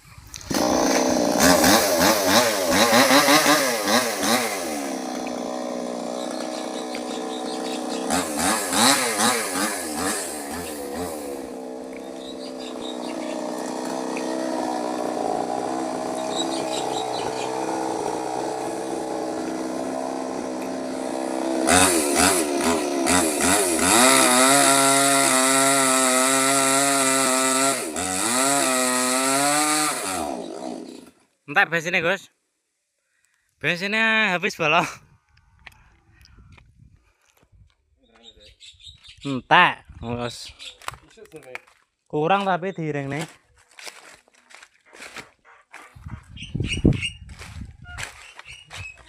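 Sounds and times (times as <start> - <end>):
small chainsaw revving: 0.4 - 31.2.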